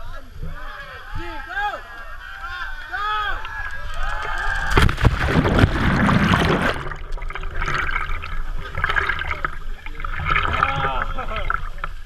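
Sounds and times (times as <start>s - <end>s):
water splashing: 3.3s - 12.0s
person splashing into water: 4.6s - 11.8s.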